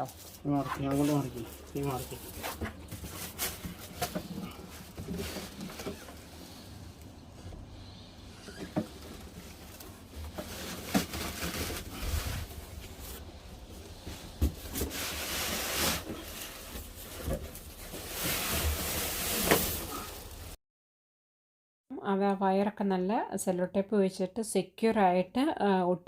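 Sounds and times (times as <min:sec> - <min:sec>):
scraping and rustling: 0:00.0 - 0:20.6.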